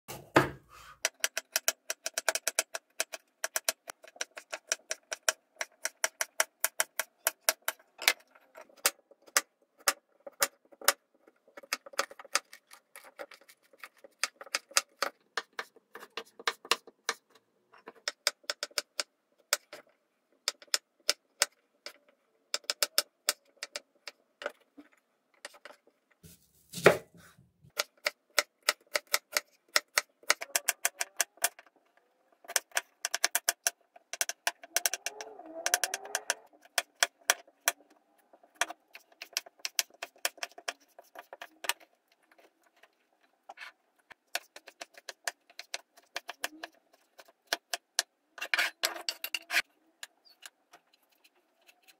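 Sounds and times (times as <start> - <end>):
knife chopping on cutting board: 26.7 - 27.2.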